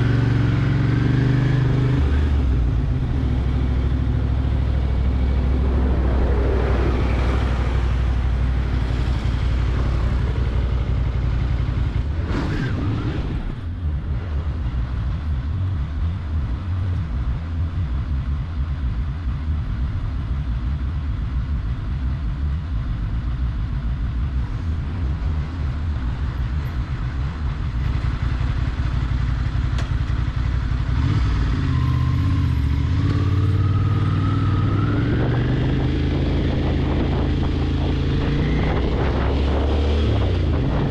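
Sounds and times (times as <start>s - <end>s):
motorcycle engine rumbling: 0.0s - 40.9s.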